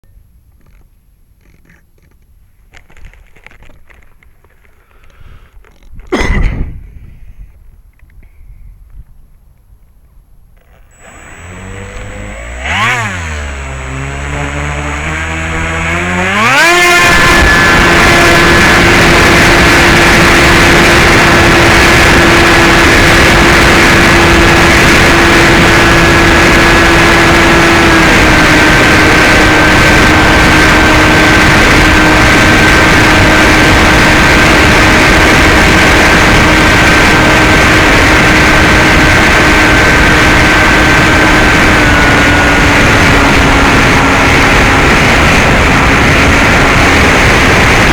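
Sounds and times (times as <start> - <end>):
wind rushing on microphone: 5.2 - 47.9
electric motor and propeller whining: 10.6 - 47.9.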